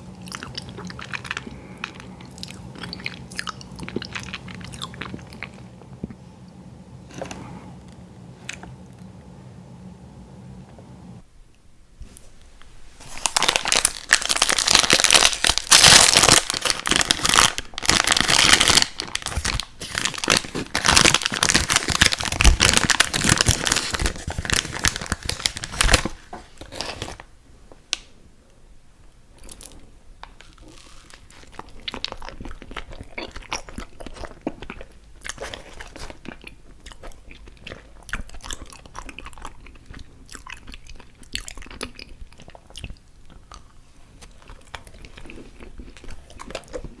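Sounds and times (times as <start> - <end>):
crunching ice cream sandwiches: 0.0 - 5.8, 13.2 - 27.2, 29.4 - 47.0
chewing: 0.1 - 6.2, 29.4 - 47.0.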